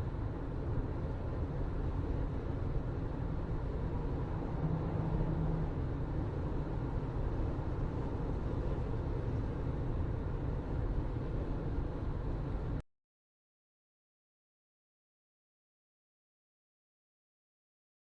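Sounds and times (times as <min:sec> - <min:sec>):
moving vehicle rumble: 0:00.0 - 0:12.8.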